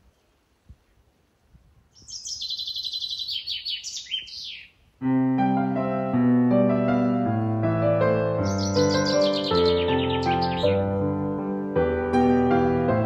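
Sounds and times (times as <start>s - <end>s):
songbird trilling: 1.9s - 4.8s, 8.4s - 10.8s
gentle piano chords: 5.0s - 13.0s.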